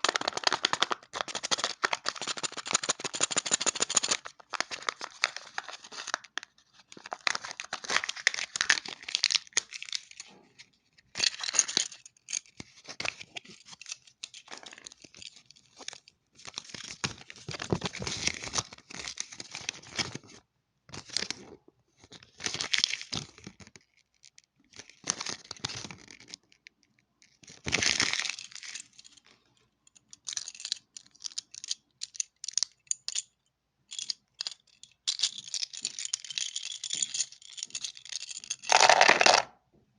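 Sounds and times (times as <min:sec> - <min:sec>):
packaging tearing and crinkling: 0:00.0 - 0:03.1, 0:38.7 - 0:39.5.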